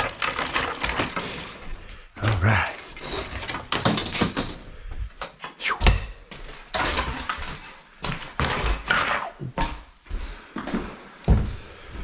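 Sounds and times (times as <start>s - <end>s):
wooden debris knocking and scraping: 0.0s - 5.2s, 6.4s - 9.0s.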